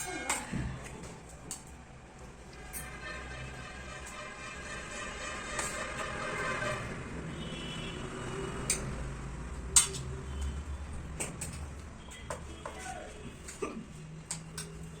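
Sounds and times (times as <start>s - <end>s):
cutlery clinking against dish: 9.7s - 10.2s.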